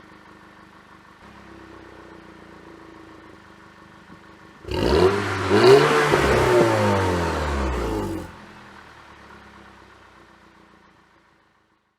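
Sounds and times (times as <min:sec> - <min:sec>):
car engine revving: 0:04.6 - 0:08.5.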